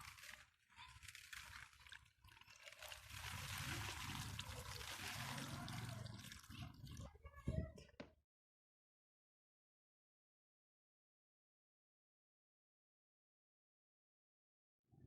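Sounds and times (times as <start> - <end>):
liquid pouring into container: 0.0 - 7.2.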